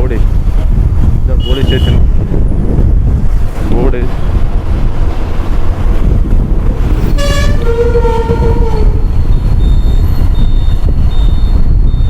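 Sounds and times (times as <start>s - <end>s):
wind rumble on microphone: 0.0s - 12.0s
vehicle horn honking: 1.4s - 2.0s, 7.1s - 9.0s.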